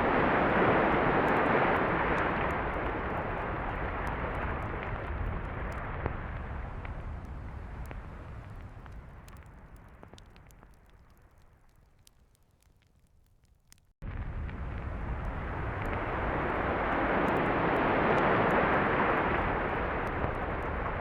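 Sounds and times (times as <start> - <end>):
beach surf roaring: 0.0 - 3.8, 16.0 - 20.2.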